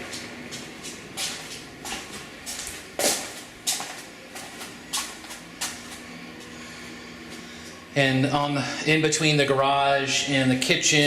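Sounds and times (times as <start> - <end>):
footsteps on a hard floor: 0.0 - 6.5.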